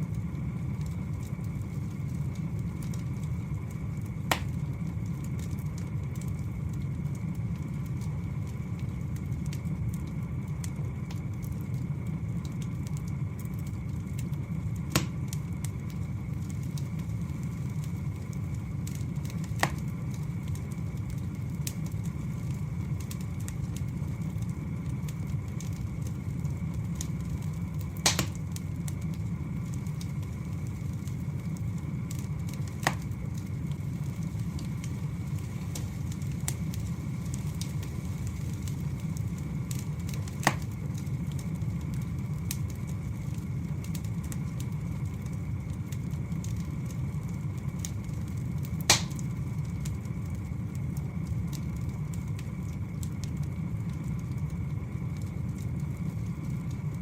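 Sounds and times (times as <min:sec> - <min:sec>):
fire crackling: 0:00.0 - 0:57.0
wood fire rumbling: 0:00.0 - 0:57.0
logs popping: 0:04.2 - 0:04.6, 0:14.9 - 0:15.8, 0:27.8 - 0:28.6, 0:39.7 - 0:40.8, 0:48.8 - 0:49.3.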